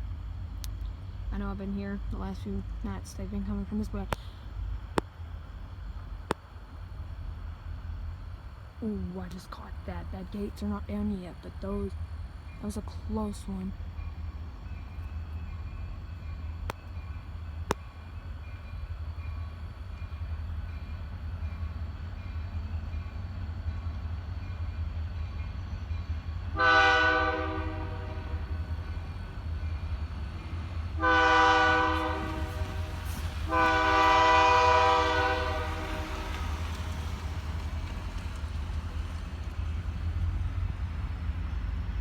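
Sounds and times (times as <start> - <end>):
steady low rumble: 0.0 - 26.6, 27.6 - 42.0
locomotive air horn blasts: 26.5 - 28.6, 31.0 - 36.8.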